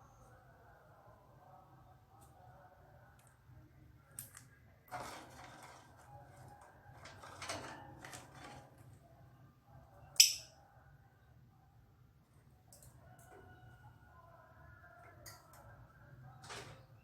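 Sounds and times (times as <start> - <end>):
rustling and scraping: 4.9 - 9.1.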